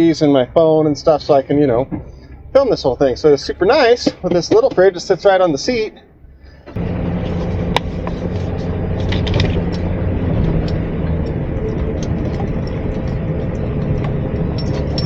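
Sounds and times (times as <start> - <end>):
vehicle engine humming: 0.0 - 15.0
small rattles and knocks: 6.8 - 15.0.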